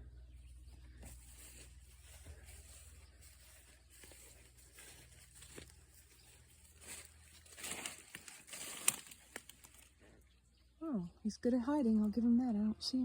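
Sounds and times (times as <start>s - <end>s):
low steady hum: 0.0s - 13.0s
faint rustling: 0.6s - 10.3s.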